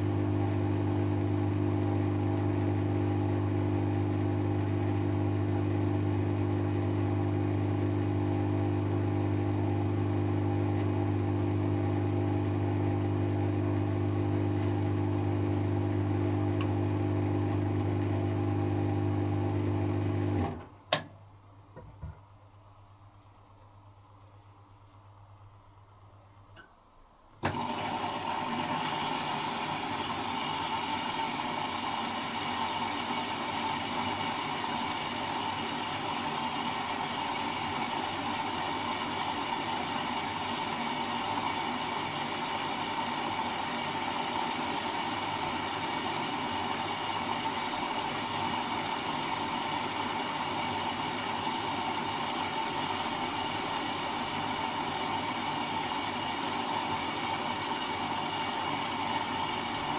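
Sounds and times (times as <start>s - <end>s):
water rushing through inlet valve: 27.4s - 59.9s.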